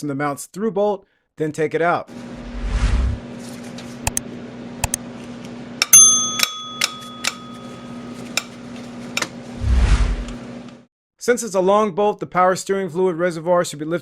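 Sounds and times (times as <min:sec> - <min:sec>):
light metallic tool clicks: 0:06.4 - 0:07.4.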